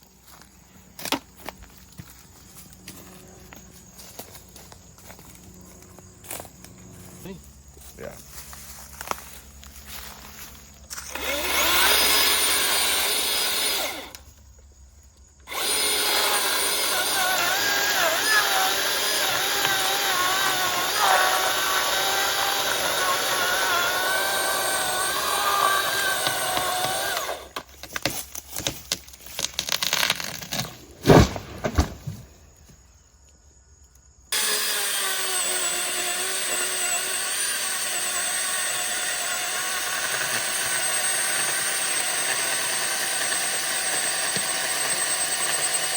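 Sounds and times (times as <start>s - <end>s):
chainsaw cutting wood: 10.8s - 14.3s, 15.4s - 32.2s, 34.3s - 45.9s.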